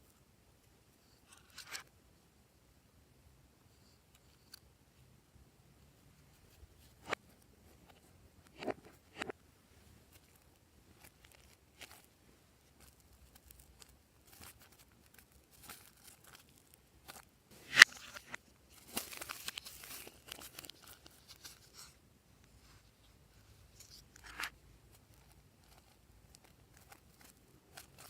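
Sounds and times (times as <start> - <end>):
crinkling and crackling: 6.5 - 28.0
sharp snap: 17.6 - 18.3.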